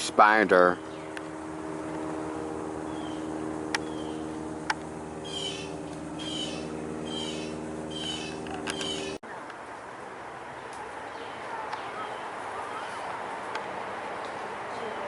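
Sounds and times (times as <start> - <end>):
steady low hum: 0.0 - 14.8
bird calling: 0.6 - 2.2, 2.8 - 4.4, 5.2 - 9.2, 10.6 - 13.2
sharp clicks: 8.3 - 9.0.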